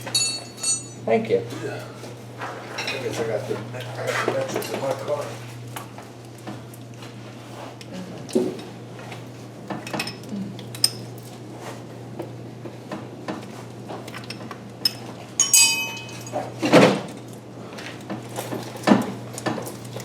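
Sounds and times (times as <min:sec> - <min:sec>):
metal tools clinking on metal: 0:00.0 - 0:01.0, 0:15.4 - 0:16.5
ringing metallic clank: 0:00.0 - 0:01.0, 0:15.4 - 0:16.4
steady low hum: 0:00.0 - 0:13.2, 0:14.8 - 0:18.1.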